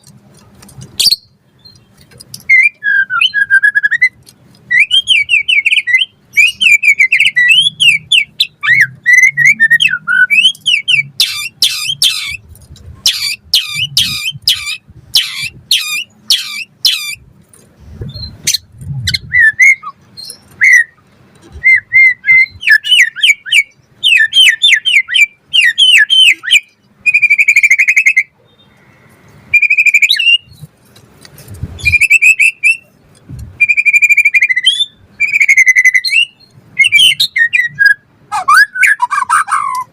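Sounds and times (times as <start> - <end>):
songbird singing whistled song: 1.0 - 12.4, 13.0 - 17.2, 18.1 - 21.0, 21.6 - 30.7, 31.8 - 33.0, 33.6 - 39.9.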